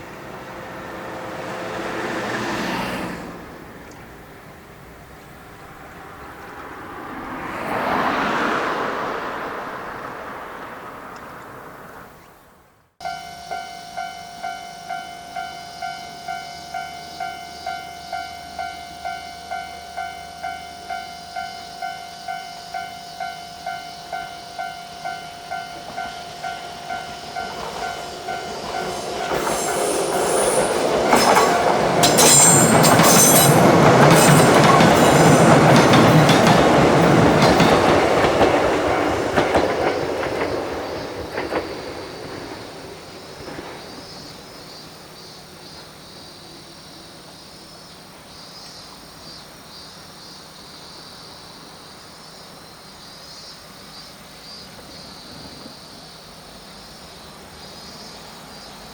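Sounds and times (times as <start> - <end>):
train passing: 0.0 - 58.9
level-crossing warning bell: 13.0 - 40.4
train wheel squeal: 13.1 - 42.6
wheels clicking on rails: 23.2 - 44.6.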